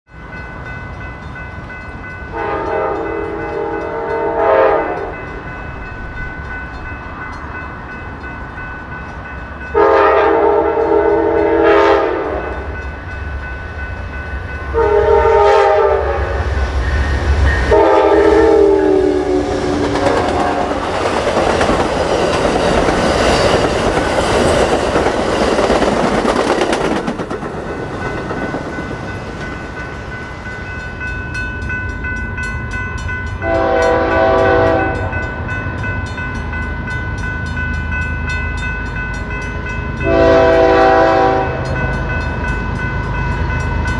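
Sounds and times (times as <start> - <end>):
deep train rumble: 0.1 - 43.9
train wheel and rail noise: 0.1 - 43.9
train horn blasts: 2.3 - 5.2, 9.7 - 12.7, 14.7 - 16.6, 17.6 - 20.8, 33.4 - 35.2, 40.0 - 41.8.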